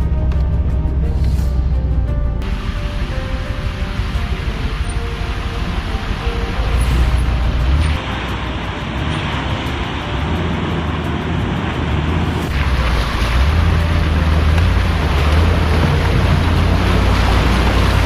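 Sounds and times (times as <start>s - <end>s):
car engine running: 0.0s - 18.0s
water churning and splashing: 2.4s - 18.0s.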